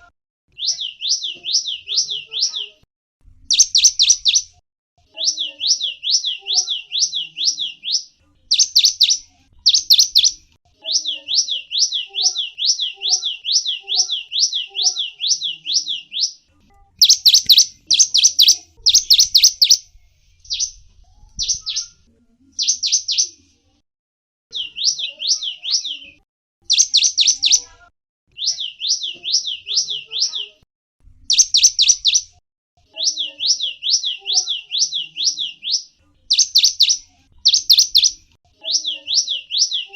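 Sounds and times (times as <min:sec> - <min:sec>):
songbird singing: 0:00.5 - 0:23.4, 0:24.5 - 0:30.6, 0:31.3 - 0:32.3, 0:32.9 - 0:39.9.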